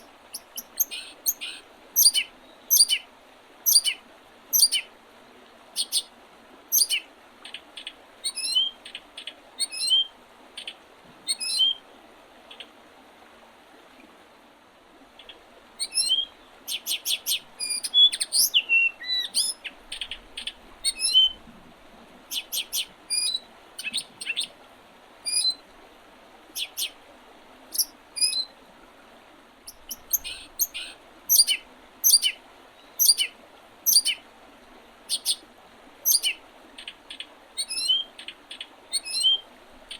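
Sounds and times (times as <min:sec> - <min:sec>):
small birds chirping: 0:00.0 - 0:03.0, 0:03.7 - 0:04.9, 0:05.8 - 0:06.1, 0:06.7 - 0:10.0, 0:15.2 - 0:21.4, 0:22.3 - 0:24.5, 0:26.6 - 0:27.0, 0:27.7 - 0:28.5, 0:29.7 - 0:33.3, 0:33.9 - 0:34.2, 0:35.1 - 0:35.4, 0:36.1 - 0:39.9.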